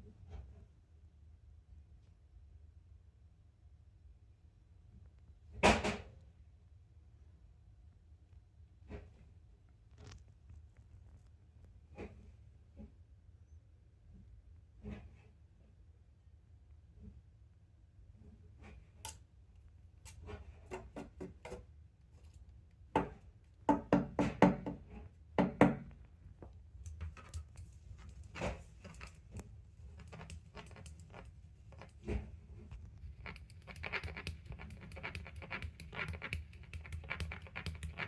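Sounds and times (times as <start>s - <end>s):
cat toy clicking and knocking: 33.2s - 38.0s.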